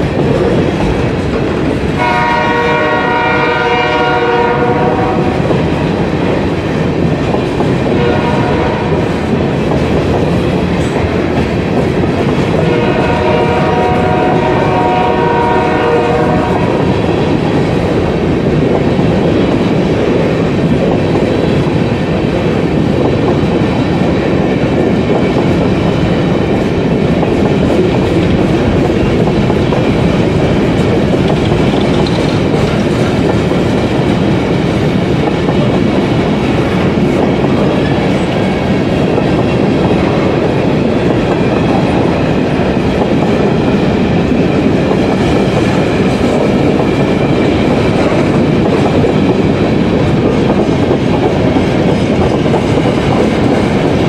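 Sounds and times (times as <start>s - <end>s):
freight train wheels on rails: 0.0s - 54.0s
multi-note train horn: 2.0s - 5.4s, 7.9s - 9.1s, 12.6s - 17.0s.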